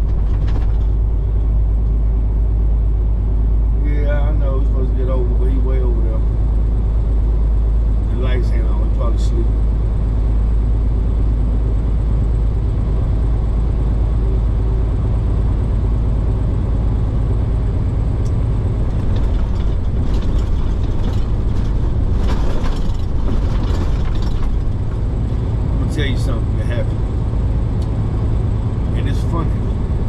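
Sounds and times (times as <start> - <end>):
clicks and rattles: 0.0 - 1.0, 18.2 - 25.4
truck engine and road drone: 0.0 - 30.0.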